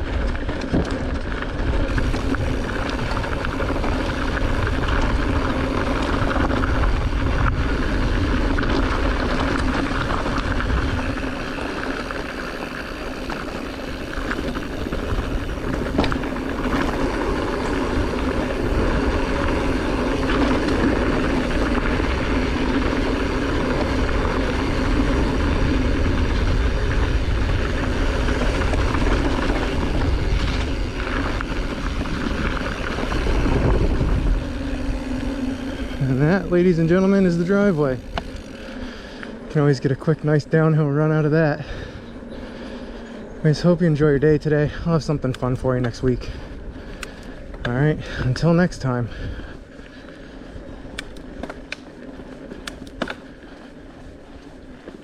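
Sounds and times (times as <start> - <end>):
low rumble: 0.0 - 39.6
bike tyres on wet dirt: 0.0 - 55.0
wind on microphone: 23.4 - 36.8.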